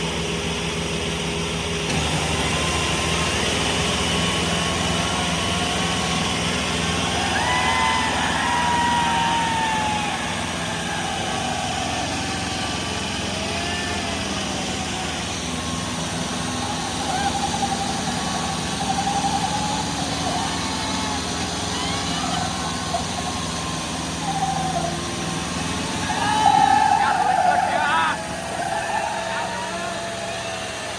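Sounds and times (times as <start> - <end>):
diesel tractor engines running: 0.0 - 30.9
people shouting: 7.0 - 30.9.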